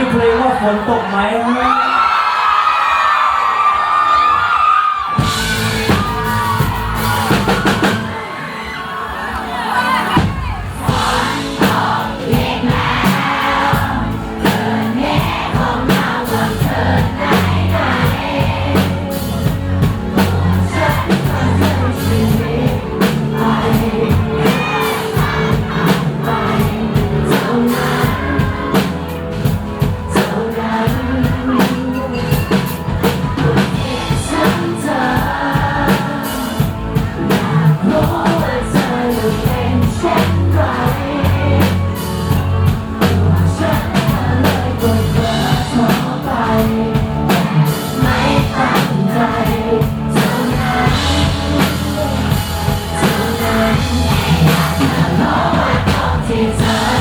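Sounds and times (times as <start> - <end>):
rock band playing a ballad: 5.0 - 57.0
person singing lead vocals: 9.4 - 57.0.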